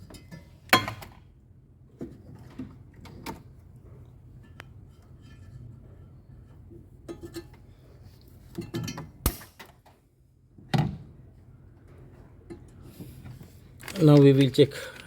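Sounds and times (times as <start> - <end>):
clinks and rattles of hard objects: 8.5 - 9.2, 13.8 - 15.0.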